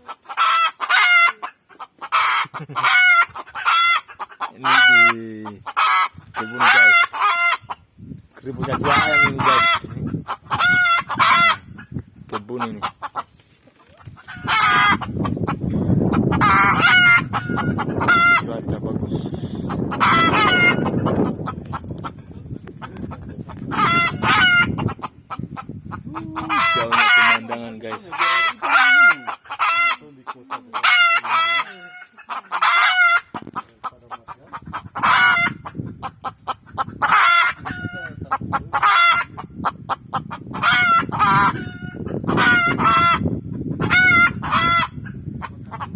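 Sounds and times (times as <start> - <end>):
junglefowl clucking and crowing: 0.0 - 45.9.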